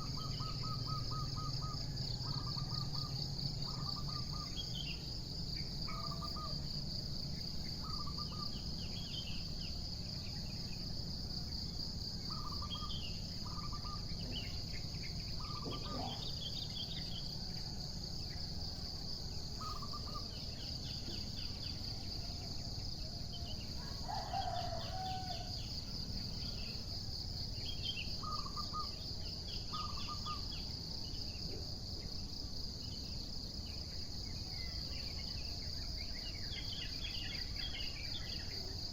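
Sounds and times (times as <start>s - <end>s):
birds calling: 0.0s - 5.1s, 5.7s - 6.6s, 7.3s - 10.1s, 12.3s - 17.2s, 19.5s - 22.0s, 23.8s - 25.5s, 27.7s - 29.0s, 29.6s - 30.6s
insect trill: 0.0s - 38.9s.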